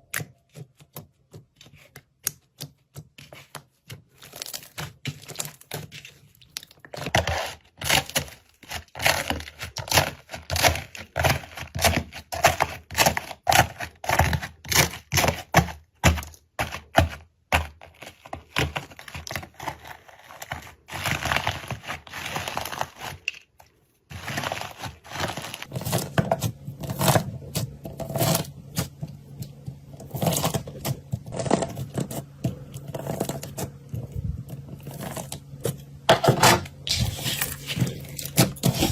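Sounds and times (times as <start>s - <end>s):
faint low hum: 23.7s - 38.9s.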